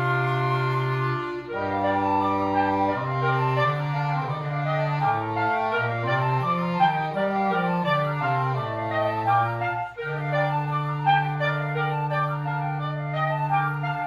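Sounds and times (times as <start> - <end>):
woodwind quintet playing: 0.0 - 14.0.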